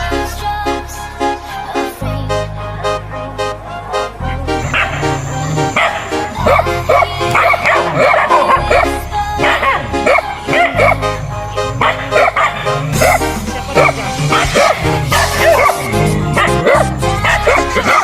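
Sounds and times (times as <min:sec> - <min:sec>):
background music: 0:00.0 - 0:18.0
dogs barking and yipping: 0:04.6 - 0:18.0.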